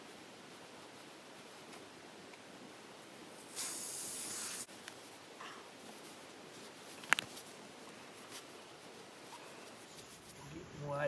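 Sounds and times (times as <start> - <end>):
air hissing from a tyre: 3.4 - 4.7.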